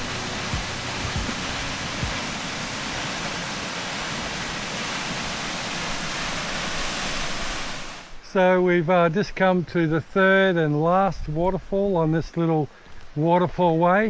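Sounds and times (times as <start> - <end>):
soft low thumps: 0.0 - 2.2
waterfall rushing: 0.0 - 8.2.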